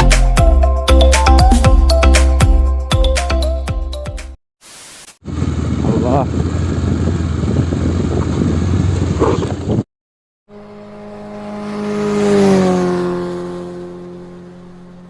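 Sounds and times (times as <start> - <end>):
rumbling engine and road noise: 5.2 - 9.9, 10.5 - 15.0
vehicle passing by: 10.5 - 15.0.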